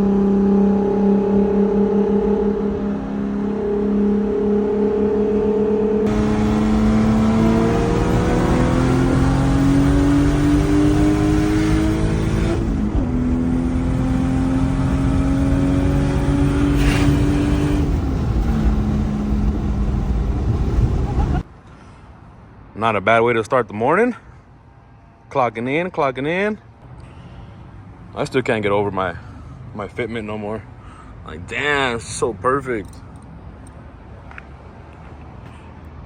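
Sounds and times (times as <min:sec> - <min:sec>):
car engine accelerating through gears: 0:00.0 - 0:21.4.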